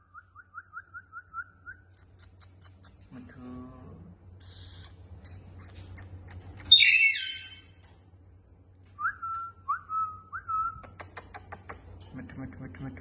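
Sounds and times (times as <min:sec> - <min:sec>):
parrot squawking: 0:04.4 - 0:07.7
parrot whistling: 0:06.6 - 0:07.6.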